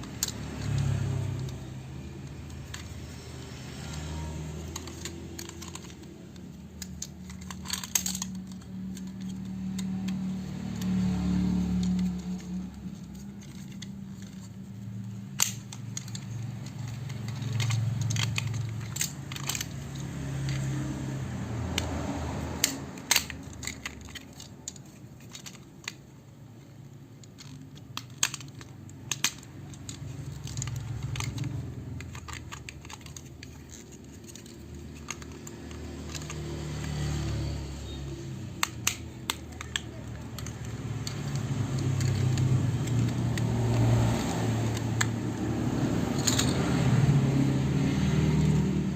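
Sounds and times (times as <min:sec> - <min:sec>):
plastic toy parts clicking: 0:00.0 - 0:48.9
plastic snaps: 0:27.2 - 0:46.6.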